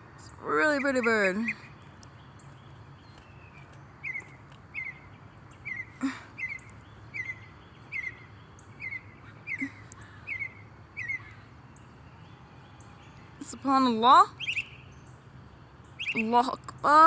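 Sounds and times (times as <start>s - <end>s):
songbird whistling: 2.4s - 13.6s, 14.3s - 15.2s, 15.8s - 16.4s.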